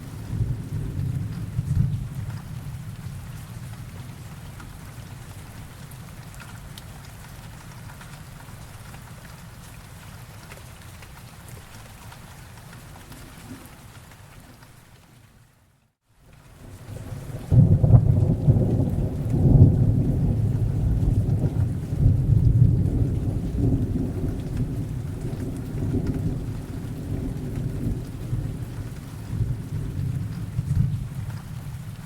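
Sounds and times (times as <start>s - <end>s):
thunder rumbling: 0.0s - 4.8s, 16.8s - 32.0s
rain: 0.0s - 32.0s.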